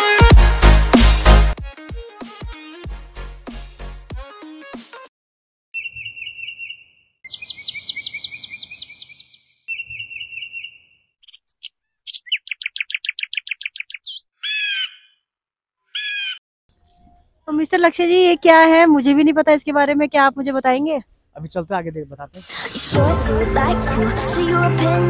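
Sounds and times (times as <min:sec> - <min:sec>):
birds chirping: 0:05.8 - 0:15.3, 0:15.9 - 0:17.2.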